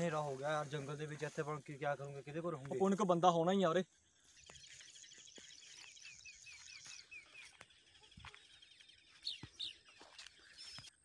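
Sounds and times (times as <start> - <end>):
faint bird chirps: 3.6 - 11.0.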